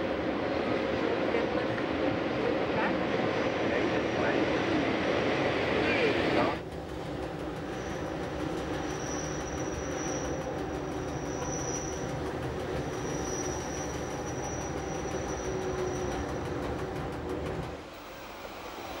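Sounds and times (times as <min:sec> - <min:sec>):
electric train rumbling: 0:00.0 - 0:19.0
wheels squealing on track: 0:07.8 - 0:16.7.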